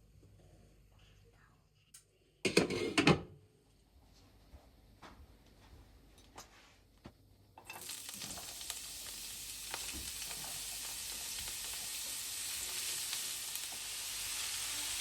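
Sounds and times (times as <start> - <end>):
food sizzling in a pan: 7.6 - 15.0.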